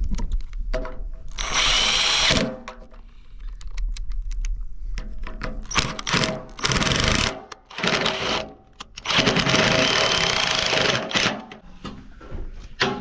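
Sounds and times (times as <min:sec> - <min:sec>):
cordless drill driving bolts: 0:01.3 - 0:02.6, 0:05.6 - 0:11.6.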